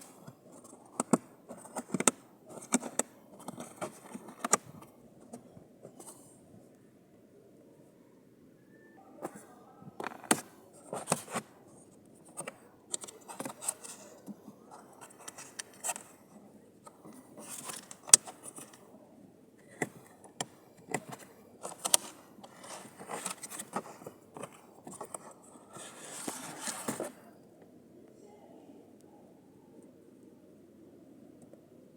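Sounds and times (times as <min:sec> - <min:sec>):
scraping rustles: 0:20.9 - 0:27.2.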